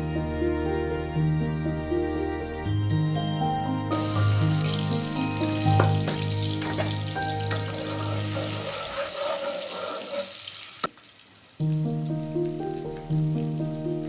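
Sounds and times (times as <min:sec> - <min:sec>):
soft background music: 0:00.0 - 0:09.2, 0:11.6 - 0:14.0
food sizzling in a pan: 0:03.9 - 0:14.0.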